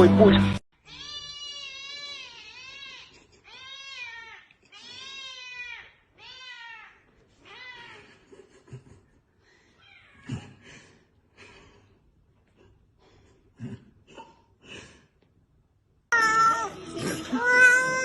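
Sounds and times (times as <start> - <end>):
cat meowing: 16.2 - 18.0.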